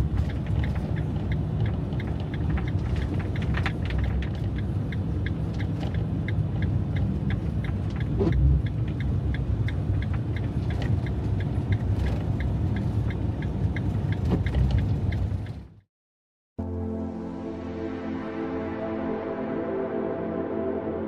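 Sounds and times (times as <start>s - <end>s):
light regular ticking: 0.0s - 15.6s
van engine and road rumble: 0.0s - 15.9s.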